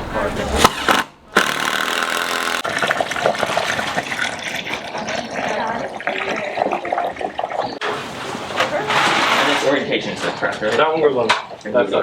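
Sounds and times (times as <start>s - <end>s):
power drill driving screws: 1.4s - 2.6s.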